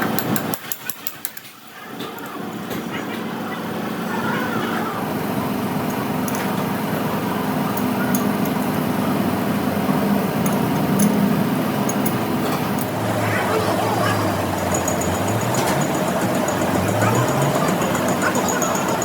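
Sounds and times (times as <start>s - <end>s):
machine humming: 8.8s - 19.0s.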